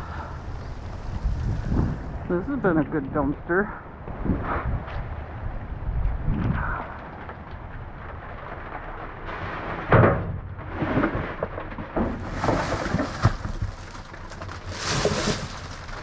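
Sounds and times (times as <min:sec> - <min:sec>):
wind rumble on microphone: 0:00.0 - 0:16.0
knocks and rustling: 0:07.1 - 0:16.0
loud thump: 0:09.9 - 0:10.5.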